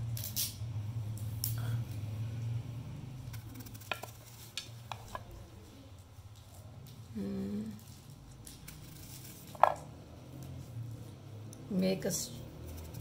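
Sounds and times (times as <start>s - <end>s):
knife cutting an apple: 3.3s - 5.3s.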